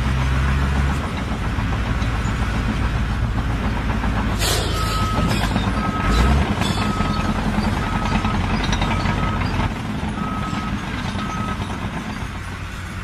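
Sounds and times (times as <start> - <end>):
heavy engine rumble: 0.0 - 13.0
reversing alarm beeps: 4.6 - 9.6, 10.2 - 11.8.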